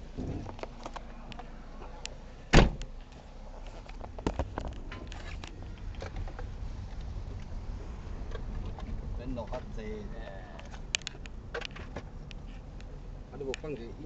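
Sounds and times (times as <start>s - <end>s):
low rumble: 1.5s - 13.4s
loud thump: 2.5s - 2.8s.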